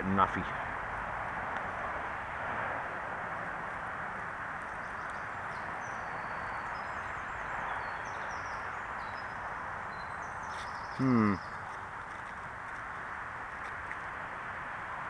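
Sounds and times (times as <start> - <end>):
wind and road noise: 0.0 - 15.0
birds chirping: 4.1 - 14.5.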